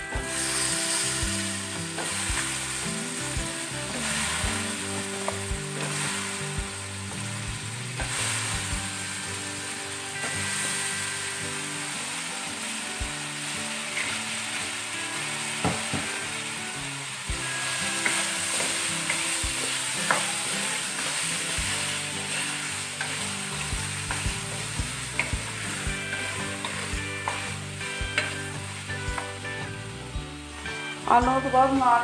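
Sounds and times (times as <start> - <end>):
potatoes sizzling in oil: 0.0 - 32.0
wooden spoon knocking on pan: 15.6 - 16.2, 23.0 - 29.4.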